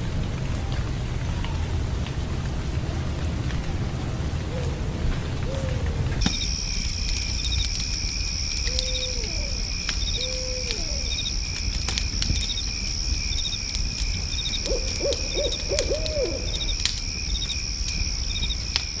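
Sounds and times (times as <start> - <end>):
owl hooting: 4.5 - 6.0, 8.7 - 11.3, 14.6 - 16.7.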